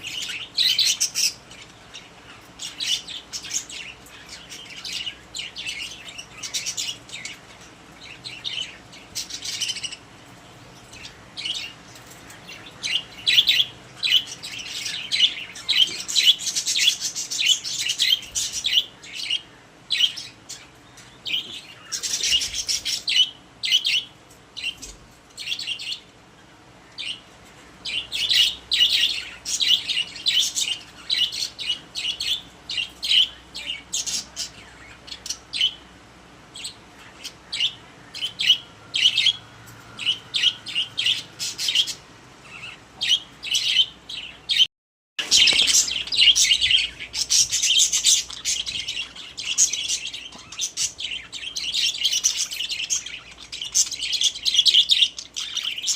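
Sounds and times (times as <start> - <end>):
budgerigars chirping: 0.0 - 10.1, 10.8 - 26.1, 26.9 - 35.9, 36.6 - 55.9.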